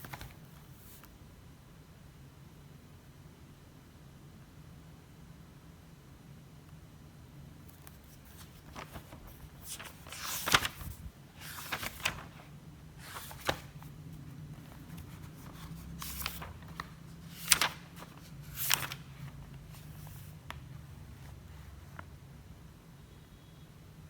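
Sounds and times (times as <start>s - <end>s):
papers rustling: 0.0s - 1.1s, 7.7s - 22.0s.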